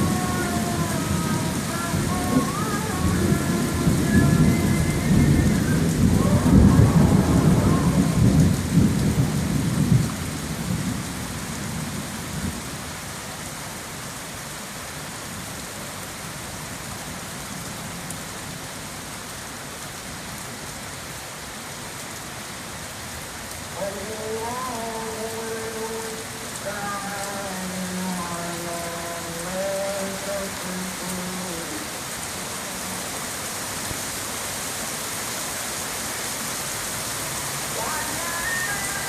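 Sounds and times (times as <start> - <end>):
thunder rumbling: 0.0 - 12.6
heavy rain: 0.0 - 39.0.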